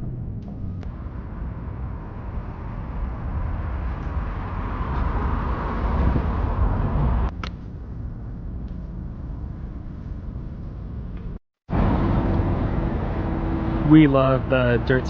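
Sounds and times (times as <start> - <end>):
vehicle passing: 0.0 - 7.4, 11.7 - 15.0
low traffic rumble: 0.0 - 15.0.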